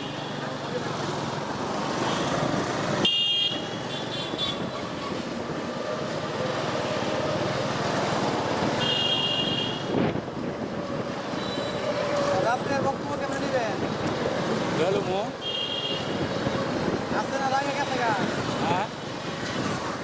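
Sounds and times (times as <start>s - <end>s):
road traffic noise: 0.0s - 20.0s
vehicle horns honking: 3.0s - 4.7s, 8.8s - 9.9s, 15.4s - 16.2s.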